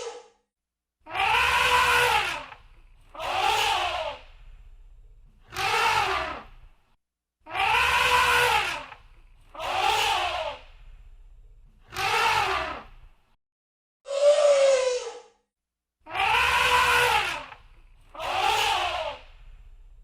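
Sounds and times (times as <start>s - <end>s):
elephant trumpeting: 1.1s - 4.2s, 7.5s - 9.0s, 16.1s - 17.6s, 18.2s - 19.2s.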